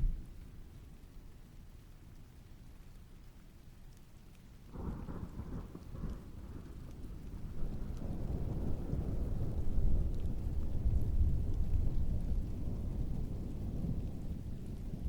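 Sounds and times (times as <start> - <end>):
thunder rumbling: 0.0 - 0.4
rain patter: 0.0 - 15.0.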